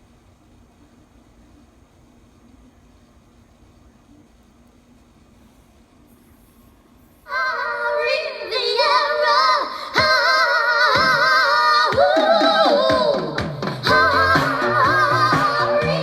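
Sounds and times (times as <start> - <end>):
song with singing from speaker: 7.3 - 16.0.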